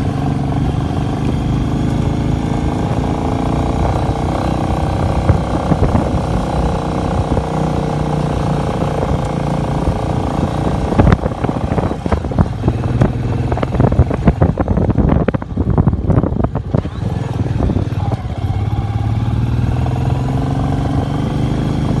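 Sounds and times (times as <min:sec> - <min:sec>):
motorcycle engine running: 0:00.0 - 0:22.0
wind gusts: 0:00.0 - 0:22.0.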